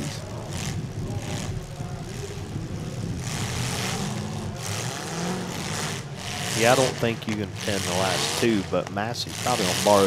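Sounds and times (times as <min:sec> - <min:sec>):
broad rush of noise: 0:00.0 - 0:10.0
car engines rumbling: 0:00.0 - 0:10.0.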